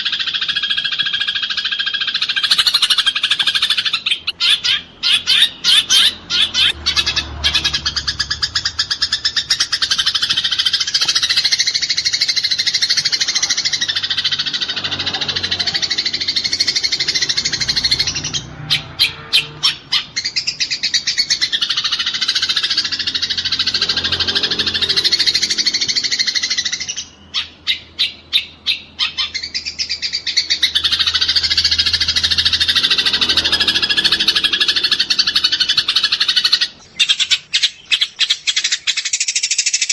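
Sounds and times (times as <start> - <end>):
sparrows chirping rapidly: 0.0 - 39.9.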